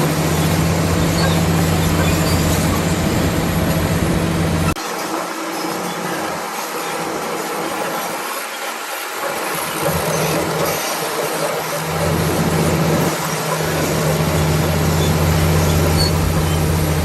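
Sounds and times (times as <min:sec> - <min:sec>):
bulldozer diesel engine: 0:00.0 - 0:17.0
crawler tracks clattering: 0:00.1 - 0:04.8.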